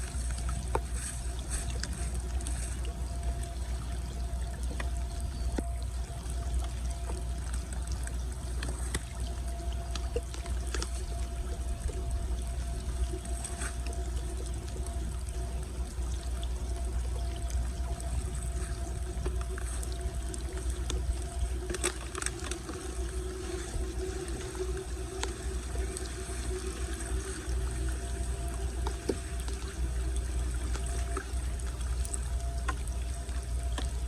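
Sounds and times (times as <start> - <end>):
water pouring into storm drain: 17.6 - 32.8.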